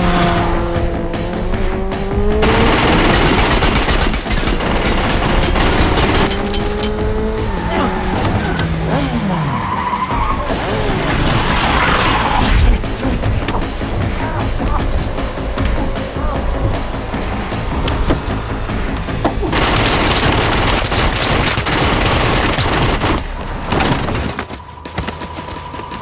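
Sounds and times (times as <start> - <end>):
car engines revving: 0.0 - 24.0
film music score: 0.0 - 26.0
rapid gunfire: 2.3 - 7.1, 19.5 - 24.3.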